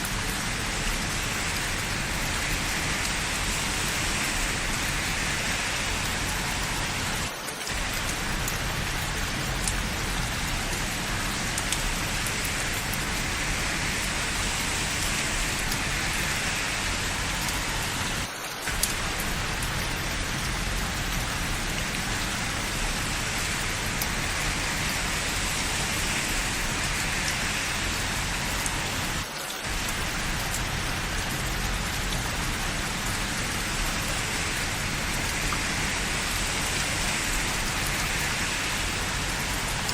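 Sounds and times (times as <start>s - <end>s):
steady rain falling: 0.0s - 39.9s
faint drip ticks: 7.8s - 13.1s.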